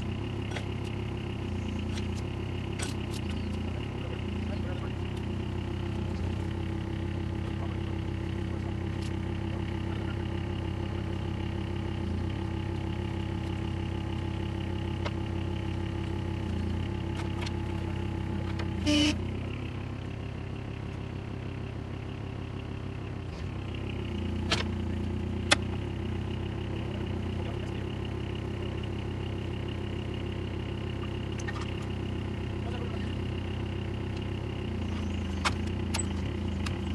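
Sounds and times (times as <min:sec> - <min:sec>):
skid steer engine running: 0:00.0 - 0:36.9
sharp clicks: 0:25.4 - 0:25.8.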